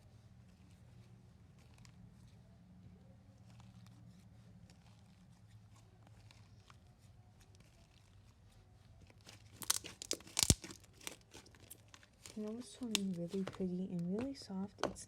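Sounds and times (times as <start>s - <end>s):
slime squishing and popping: 9.0s - 13.4s.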